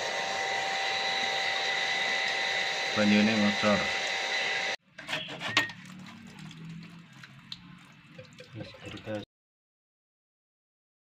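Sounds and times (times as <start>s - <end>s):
electric pump whine: 0.0s - 4.8s
water splashing from pipe: 5.7s - 9.3s.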